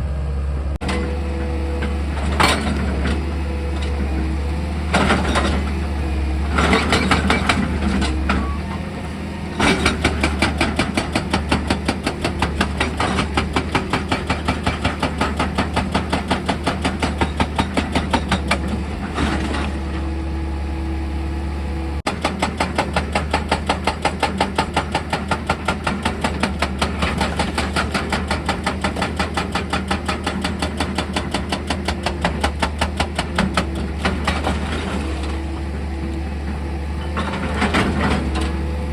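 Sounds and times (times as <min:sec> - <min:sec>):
excavator engine humming: 0:00.0 - 0:38.9
rock drill hammering: 0:22.1 - 0:33.8.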